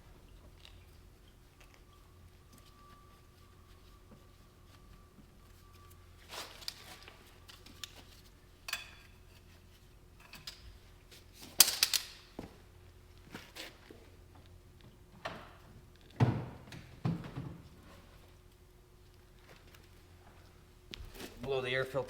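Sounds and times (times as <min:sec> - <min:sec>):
low steady hum: 0:00.0 - 0:22.0
tools clicking and knocking: 0:11.6 - 0:12.3.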